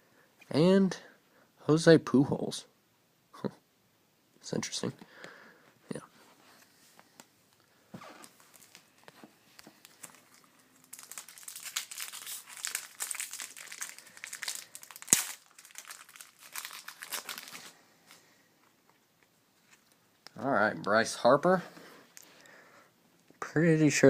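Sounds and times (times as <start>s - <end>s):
foil wrapper crinkling: 8.2s - 9.2s, 9.8s - 18.2s.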